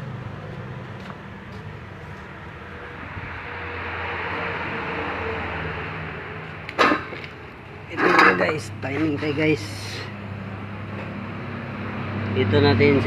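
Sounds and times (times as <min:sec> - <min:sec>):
noisy rush: 0:01.7 - 0:13.0.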